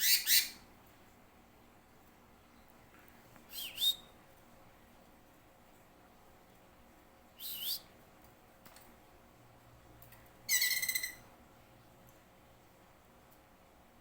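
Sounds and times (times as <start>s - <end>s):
bird whistling call: 0.0s - 0.6s, 3.5s - 4.1s, 7.4s - 7.8s, 10.5s - 11.2s.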